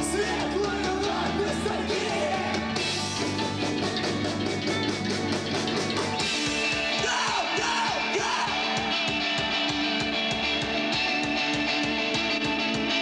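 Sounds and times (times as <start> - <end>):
sliding guitar or vocal line: 0.0 - 4.7, 6.6 - 10.0
drums fast beat: 0.0 - 13.0
electric guitars: 0.0 - 13.0.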